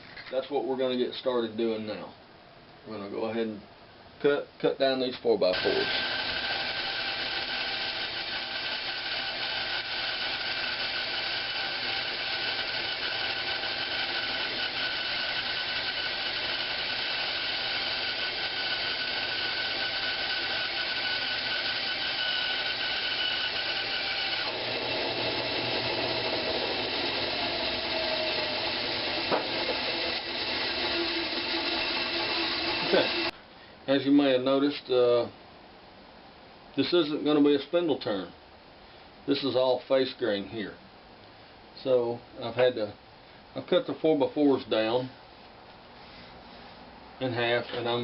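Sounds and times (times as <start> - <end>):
power saw cutting wood: 5.6 - 33.3.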